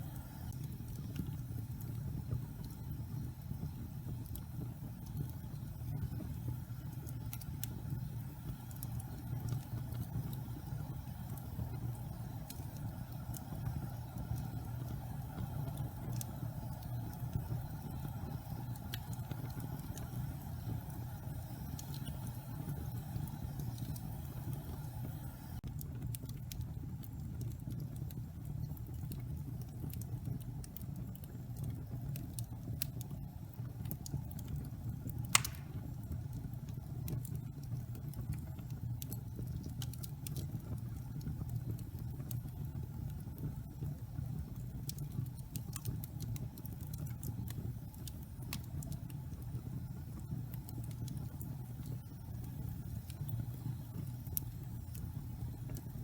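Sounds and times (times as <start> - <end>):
fire crackling: 0.0 - 56.0
wood fire rumbling: 0.0 - 56.0
loud pop of fire: 35.3 - 36.0.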